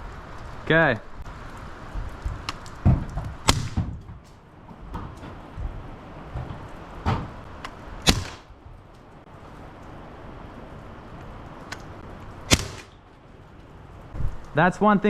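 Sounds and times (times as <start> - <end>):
air gun cracks: 3.5 - 3.8, 7.6 - 8.5, 12.5 - 13.0.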